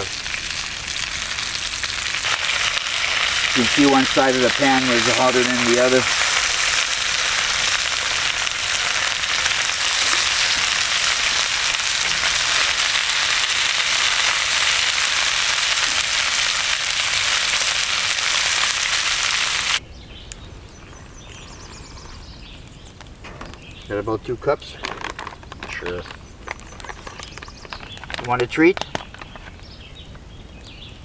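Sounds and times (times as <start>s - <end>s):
fish sizzling in a pan: 0.0s - 19.8s.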